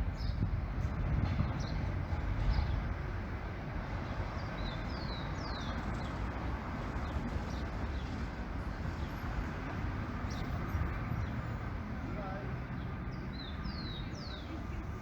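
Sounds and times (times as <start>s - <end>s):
street traffic rumble: 0.0s - 15.0s
small birds chirping: 4.4s - 6.3s, 12.7s - 14.9s.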